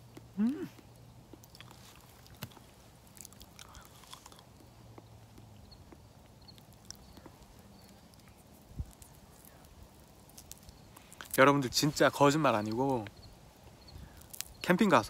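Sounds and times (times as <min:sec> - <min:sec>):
person chewing: 0:00.0 - 0:11.4.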